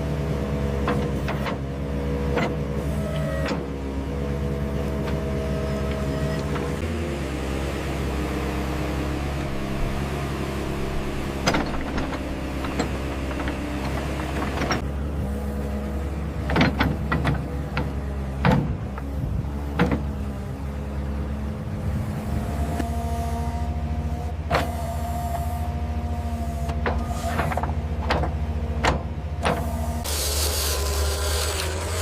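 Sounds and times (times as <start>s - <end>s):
small electric motors whining: 30.0s - 32.0s.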